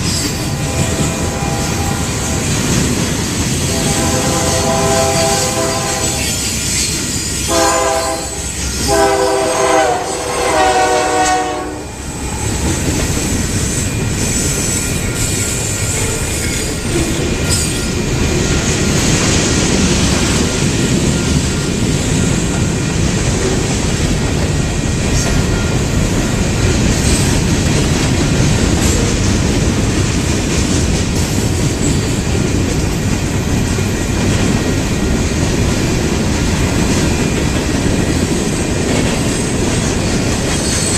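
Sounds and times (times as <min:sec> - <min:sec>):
train wheels on rails: 0:00.0 - 0:40.9
locomotive air horn blasts: 0:00.5 - 0:02.6, 0:03.7 - 0:06.5, 0:07.5 - 0:12.6.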